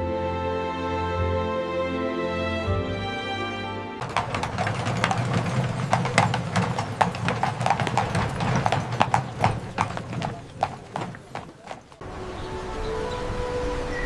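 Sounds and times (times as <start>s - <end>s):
music: 0.0s - 5.9s, 12.0s - 14.0s
horse hooves clip-clopping: 4.0s - 12.1s.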